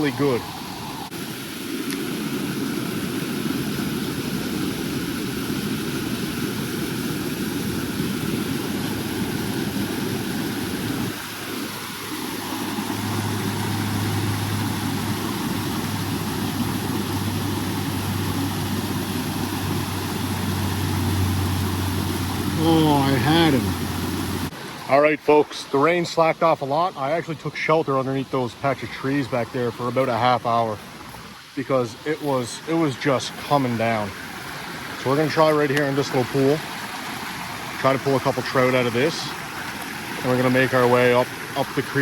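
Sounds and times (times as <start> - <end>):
creek water pouring over waterfalls: 0.0 - 42.0
low steady rumble: 12.5 - 24.5.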